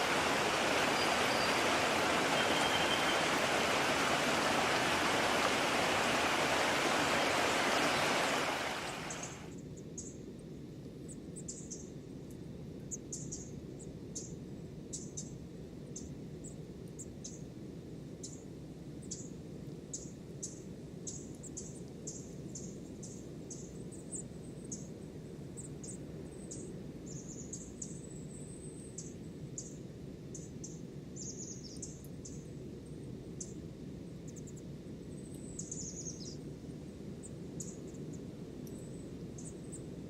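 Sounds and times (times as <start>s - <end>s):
low rushing background: 0.0s - 9.4s
songbirds chirping: 0.0s - 9.4s.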